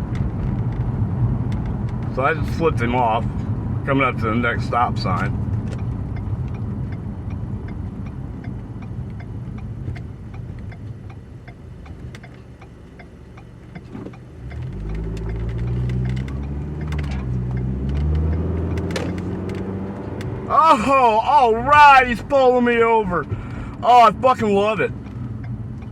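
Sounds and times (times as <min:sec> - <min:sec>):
turn signal clicking: 0:00.0 - 0:02.1, 0:05.2 - 0:25.9
car engine: 0:00.0 - 0:25.9
road noise: 0:00.0 - 0:25.9.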